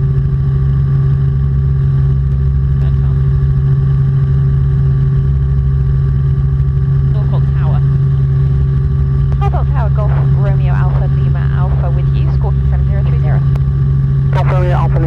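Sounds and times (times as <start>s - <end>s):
helicopter engine and rotors droning: 0.0s - 15.0s.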